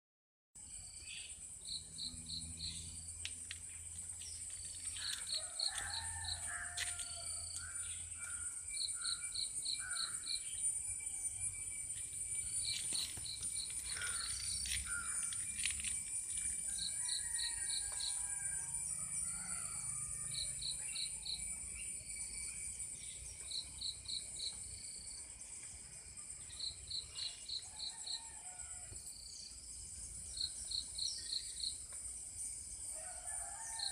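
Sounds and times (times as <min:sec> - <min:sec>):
high-pitched insect drone: 0:00.6 - 0:33.9
bird calls and chirps: 0:11.9 - 0:18.1.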